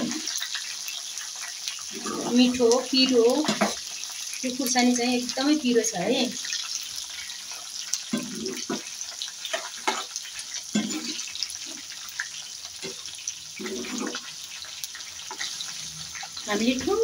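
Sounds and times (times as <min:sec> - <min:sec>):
spices sizzling in oil: 0:00.0 - 0:17.0
metal spoon scraping and stirring: 0:13.6 - 0:14.3.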